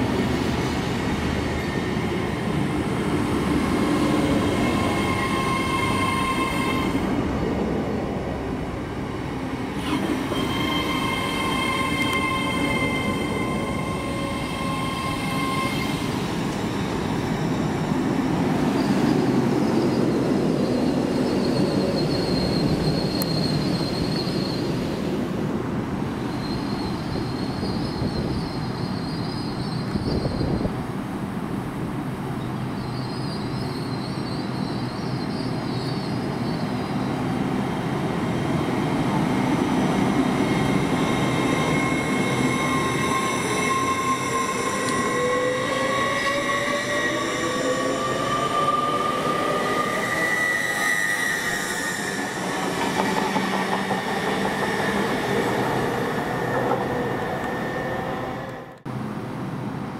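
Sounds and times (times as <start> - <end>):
train wheels rumbling on rails: 32.7 - 59.9.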